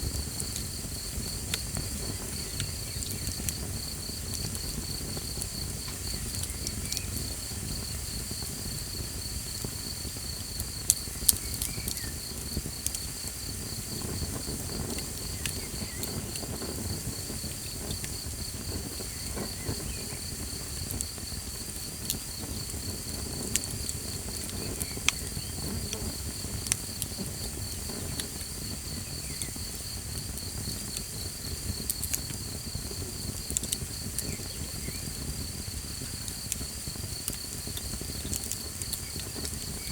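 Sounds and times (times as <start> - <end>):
campfire crackling and popping: 0.0 - 39.9
crickets trilling: 0.0 - 39.9.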